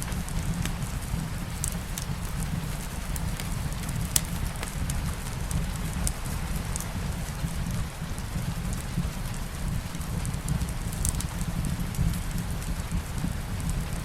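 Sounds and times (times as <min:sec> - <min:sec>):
fireplace fire crackling: 0:00.0 - 0:14.0
steady rain: 0:00.0 - 0:14.0.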